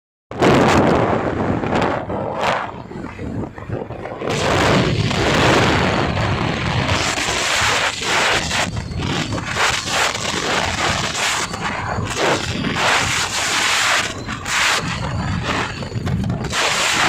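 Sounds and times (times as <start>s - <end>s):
wind buffeting microphone: 0.3s - 17.0s.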